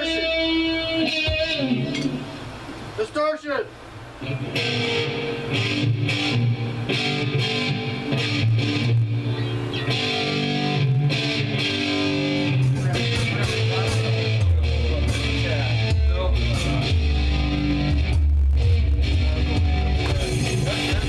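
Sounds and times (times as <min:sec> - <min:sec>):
distorted electric guitar chords: 0:00.0 - 0:03.0, 0:03.9 - 0:21.0
low bass notes: 0:04.4 - 0:21.0.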